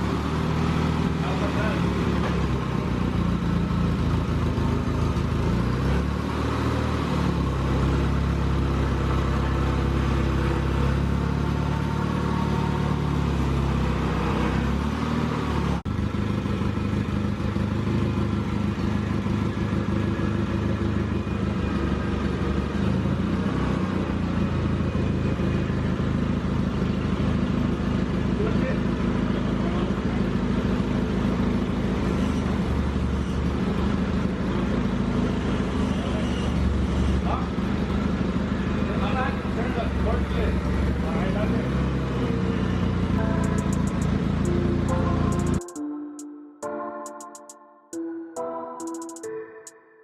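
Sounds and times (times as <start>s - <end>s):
vehicle engine running: 0.0s - 45.8s.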